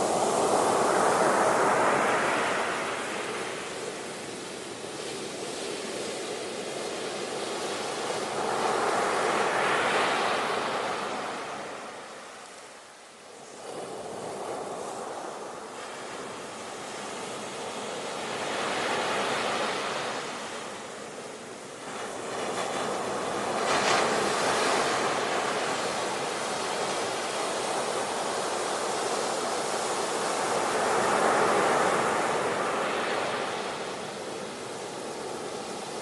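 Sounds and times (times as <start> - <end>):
ocean waves breaking: 0.0 - 4.4, 13.5 - 36.0.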